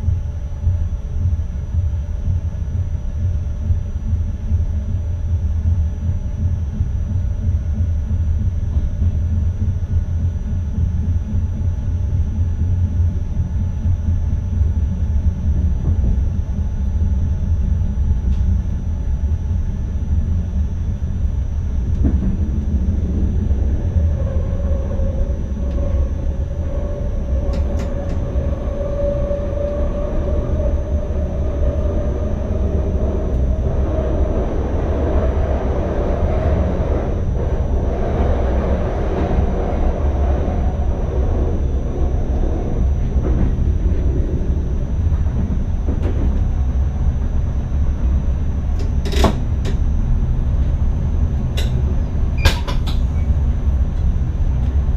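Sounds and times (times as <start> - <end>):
faint steady high whine: 0.0 - 54.9
train cab rumble: 0.0 - 54.9
rising motor whine: 21.6 - 48.0.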